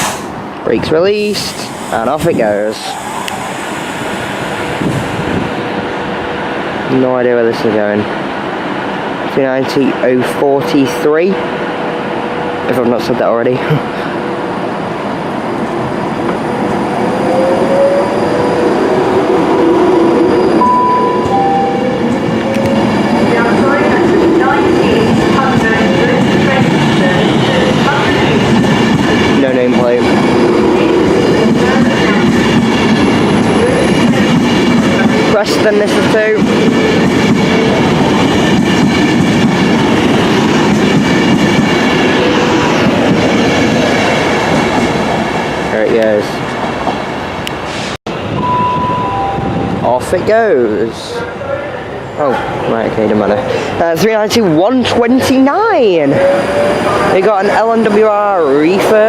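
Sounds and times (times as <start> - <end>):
train wheel and rail noise: 0.0 - 59.0
brief higher tones: 20.6 - 22.2, 48.4 - 49.9.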